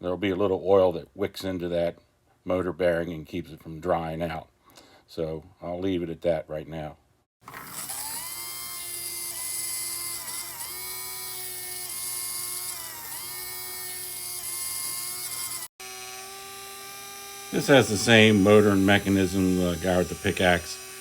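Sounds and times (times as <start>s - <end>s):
small motor high whine: 7.5s - 21.0s.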